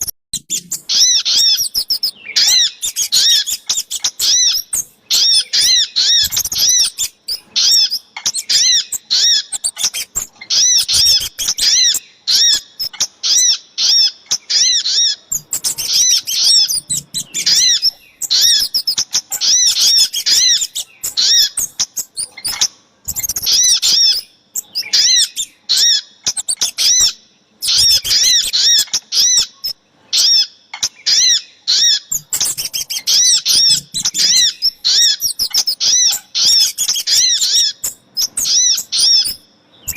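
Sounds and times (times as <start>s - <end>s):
bird twittering: 0.0s - 39.9s.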